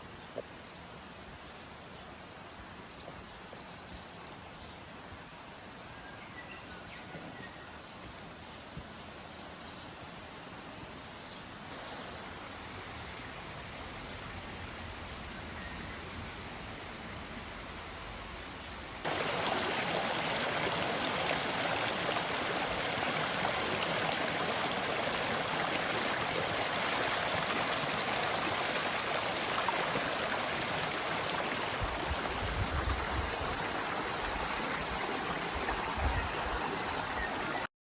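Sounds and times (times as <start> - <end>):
stream water rushing: 19.0 - 37.7.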